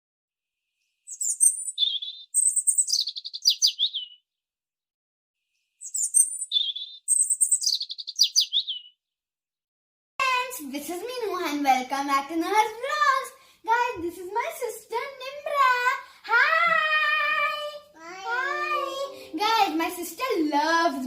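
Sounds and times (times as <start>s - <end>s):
songbird chirps and trill: 0.9s - 4.4s, 5.6s - 9.1s, 18.1s - 21.0s.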